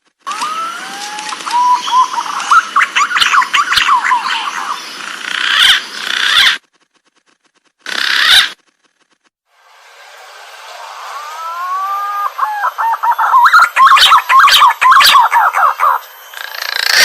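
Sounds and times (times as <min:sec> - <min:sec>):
pigeon fluting whistles: 0:00.3 - 0:04.4, 0:11.4 - 0:16.0.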